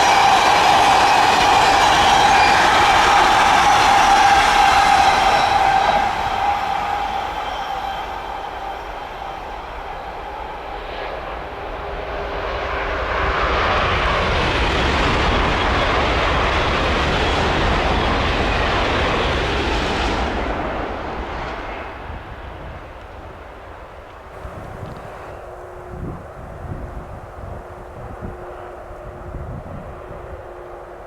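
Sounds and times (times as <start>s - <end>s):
train passing at speed: 0.0s - 31.0s.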